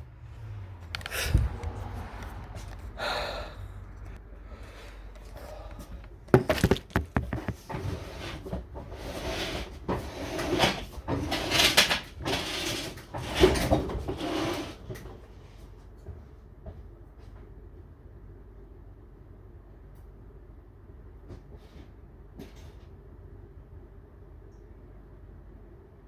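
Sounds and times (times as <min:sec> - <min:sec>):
clunks and knocks: 0:06.3 - 0:07.9
scraping and rubbing: 0:06.3 - 0:14.8.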